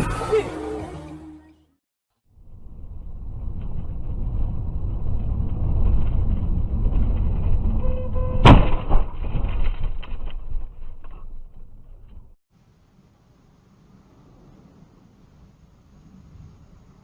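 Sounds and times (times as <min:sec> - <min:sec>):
car road and engine rumble: 0:00.0 - 0:08.7, 0:10.5 - 0:17.0
sudden loud bang: 0:08.4 - 0:10.1.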